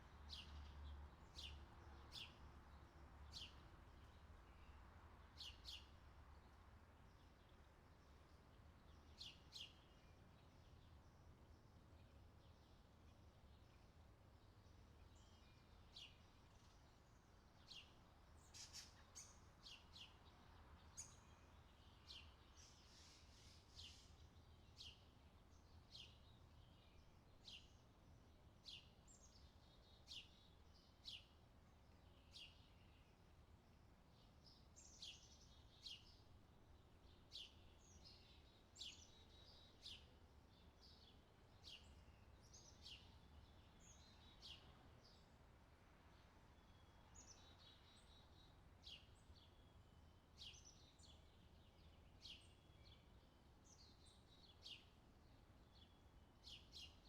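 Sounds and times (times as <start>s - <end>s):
small birds chirping: 11.6s - 33.3s, 34.0s - 45.4s, 46.0s - 57.0s.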